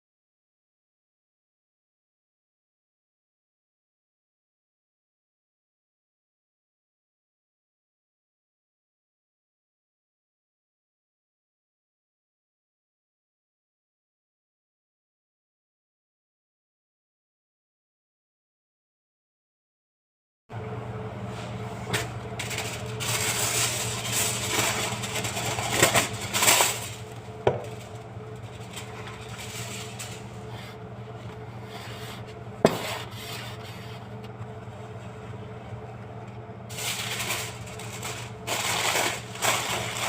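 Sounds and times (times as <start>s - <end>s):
scraping against a bowl: 31.4s - 34.2s.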